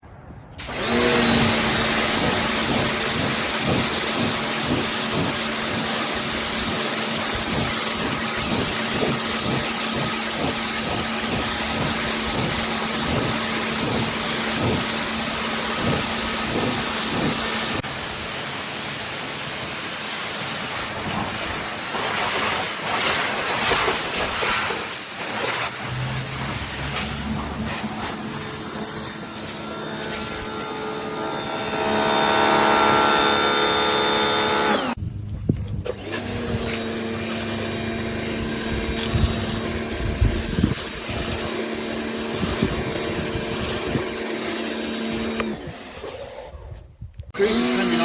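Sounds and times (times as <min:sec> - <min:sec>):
pressure washer motor hum: 0:00.5 - 0:46.6, 0:47.2 - 0:48.0
high-pressure water spray hiss: 0:00.6 - 0:25.8, 0:35.9 - 0:45.4.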